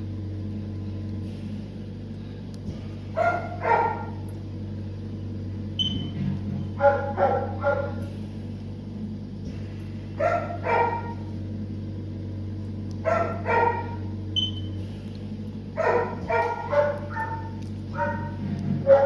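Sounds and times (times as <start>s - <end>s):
low electrical hum: 0.0s - 19.0s
dog barking: 3.2s - 4.2s, 6.8s - 8.0s, 10.2s - 11.3s, 13.0s - 14.1s, 15.8s - 19.0s.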